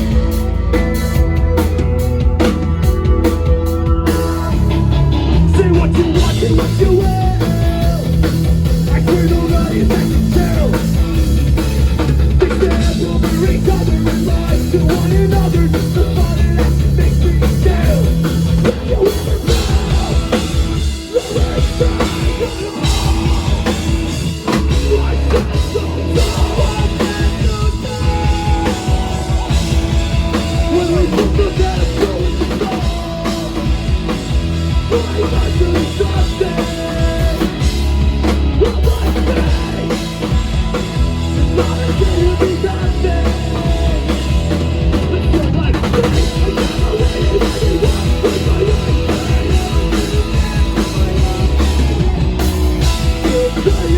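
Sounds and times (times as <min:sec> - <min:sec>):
drum kit pounding: 0:00.0 - 0:53.9
electric guitars: 0:00.0 - 0:53.9
heavy bass: 0:00.0 - 0:53.9.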